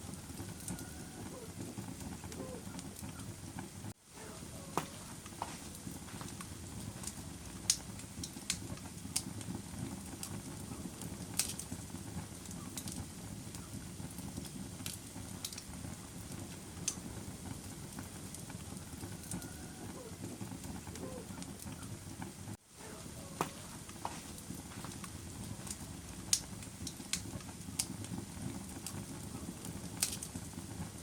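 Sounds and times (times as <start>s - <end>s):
fire crackling and popping: 0.0s - 31.0s
fire low rush: 22.0s - 31.0s.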